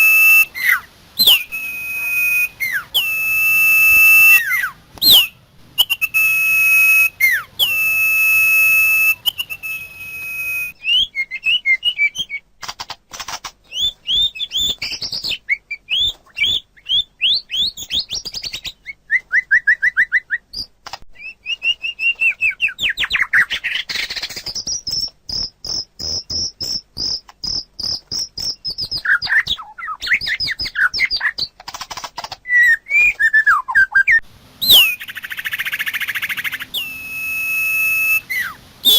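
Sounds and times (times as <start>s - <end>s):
birds singing: 0.0s - 8.3s, 13.6s - 19.0s, 32.5s - 38.9s
long steady whistled note: 0.0s - 10.9s, 34.6s - 35.1s, 36.1s - 38.9s.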